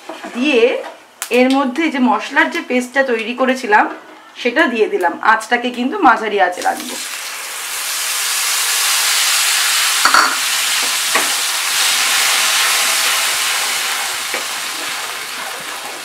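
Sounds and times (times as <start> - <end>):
spice paste sizzling in oil: 6.8 - 16.0
spatula scraping a pan: 11.2 - 16.0.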